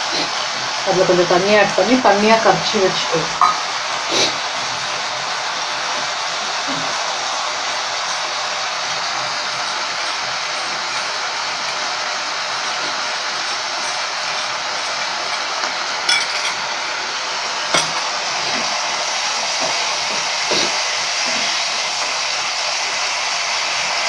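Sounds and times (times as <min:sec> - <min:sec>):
vegetables frying in a pan: 0:00.0 - 0:24.0
spoon clinking against metal: 0:13.4 - 0:16.6.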